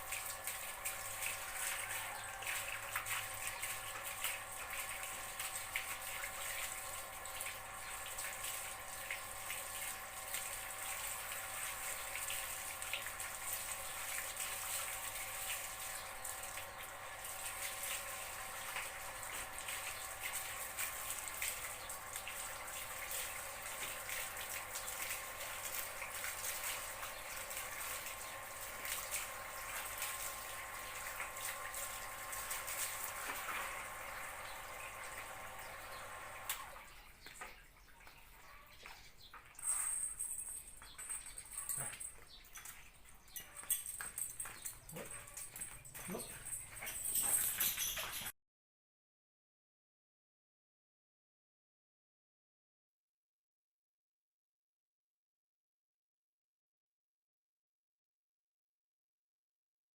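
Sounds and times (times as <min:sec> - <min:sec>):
water running: 0:00.0 - 0:38.5, 0:39.3 - 0:48.3
water splashes and drips: 0:00.0 - 0:48.3.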